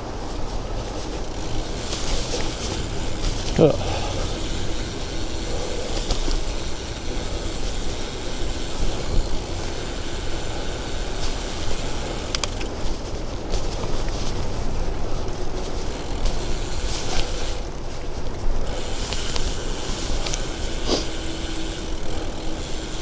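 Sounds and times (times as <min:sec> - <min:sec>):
bicycle road noise: 0:00.0 - 0:23.0
bike clicks: 0:00.0 - 0:23.0
wind: 0:00.0 - 0:23.0.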